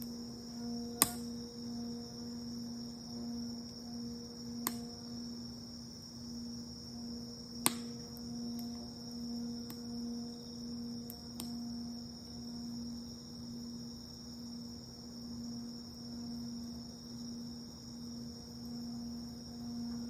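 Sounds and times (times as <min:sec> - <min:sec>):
singing bowl ringing: 0:00.0 - 0:05.6
crickets chirring: 0:00.0 - 0:20.0
bonfire pops: 0:07.6 - 0:08.0.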